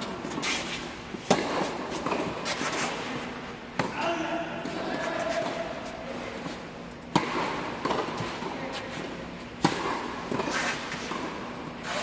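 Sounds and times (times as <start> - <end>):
tennis ball bouncing: 7.1 - 8.4
racket hitting tennis ball: 7.1 - 8.6, 9.6 - 11.5.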